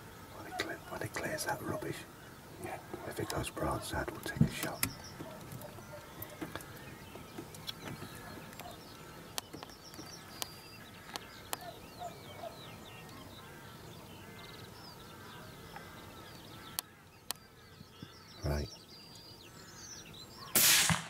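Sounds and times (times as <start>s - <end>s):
small birds chirping: 0.0s - 20.7s
sharp clicks: 4.1s - 10.5s.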